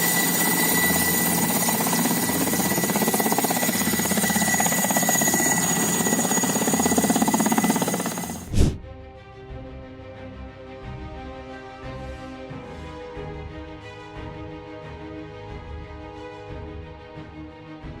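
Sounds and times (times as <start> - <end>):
jet engines at takeoff power: 0.0 - 8.6.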